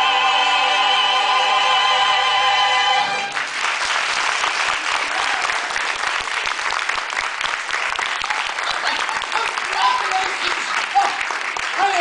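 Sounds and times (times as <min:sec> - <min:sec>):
audience applause: 0:03.0 - 0:12.0.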